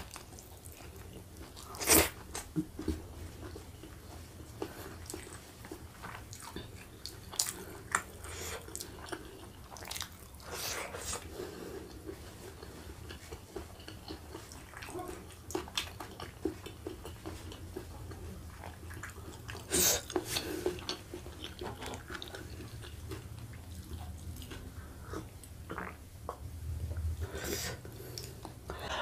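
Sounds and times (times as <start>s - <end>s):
wet chewing and mouth sounds: 0.0s - 29.0s
person gulping: 25.2s - 26.4s.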